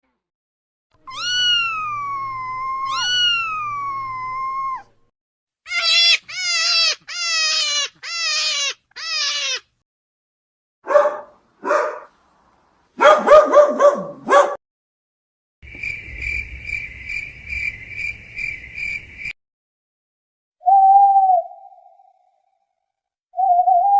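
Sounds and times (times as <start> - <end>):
cats meowing: 1.0 - 5.0, 5.7 - 9.7
dog barking: 10.8 - 12.2, 13.0 - 14.6.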